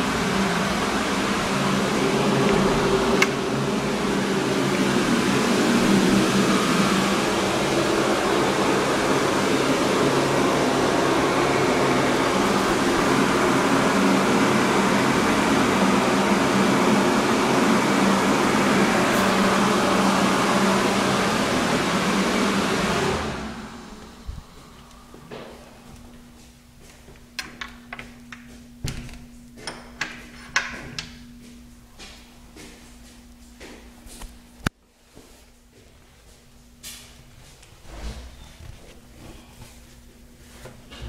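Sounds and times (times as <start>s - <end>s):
electric fan motor whirring: 0.0s - 34.8s.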